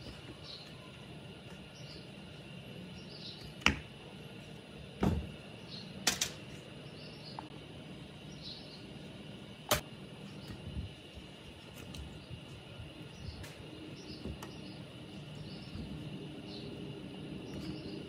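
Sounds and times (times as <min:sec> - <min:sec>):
faint bird chirps: 0:00.0 - 0:02.2.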